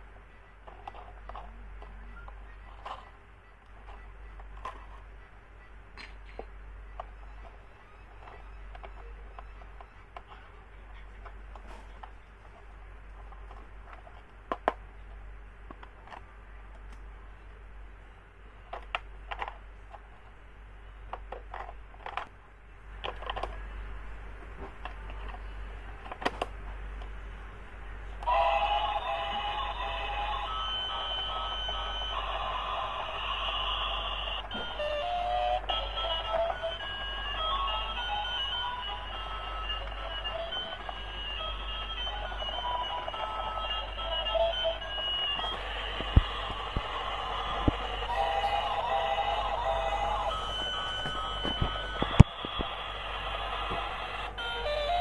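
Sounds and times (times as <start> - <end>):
electronic toy beeping tune: 28.3 - 53.0, 54.1 - 55.0.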